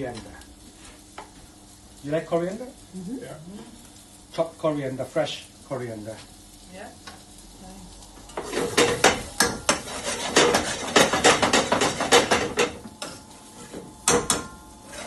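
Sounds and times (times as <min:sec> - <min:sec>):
spoon scraping a pan: 0:08.3 - 0:15.0.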